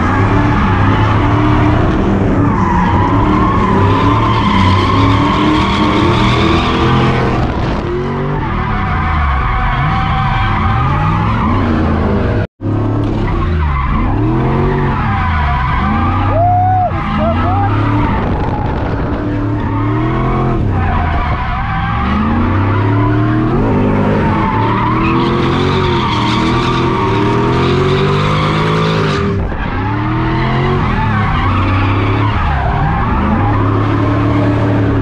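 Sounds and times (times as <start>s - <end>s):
car engine revving: 0.0s - 35.0s
tyres skidding: 0.0s - 35.0s.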